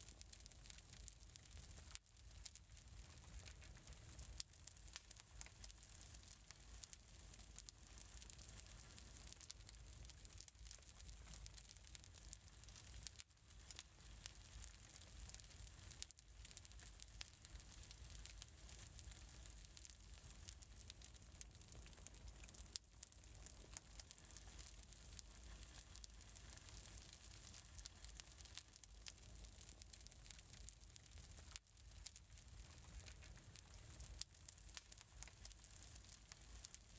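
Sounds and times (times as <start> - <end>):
fireplace crackling: 0.0 - 36.9.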